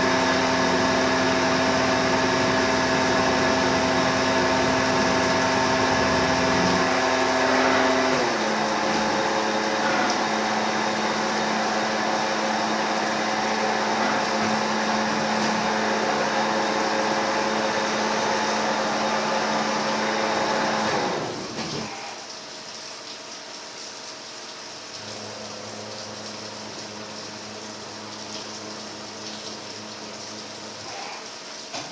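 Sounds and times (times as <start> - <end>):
lathe spindle whine: 0.0 - 21.4.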